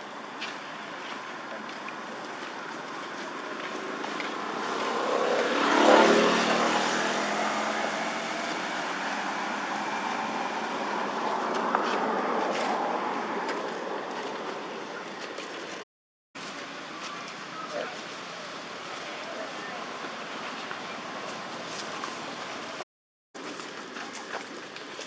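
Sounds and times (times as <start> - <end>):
traffic noise: 0.0 - 15.8, 16.4 - 22.8
motor vehicle passing close by: 3.2 - 15.8.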